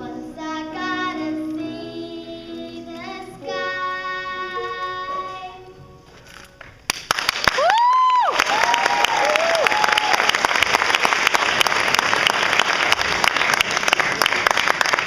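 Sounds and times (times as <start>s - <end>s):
musical accompaniment: 0.0s - 7.0s.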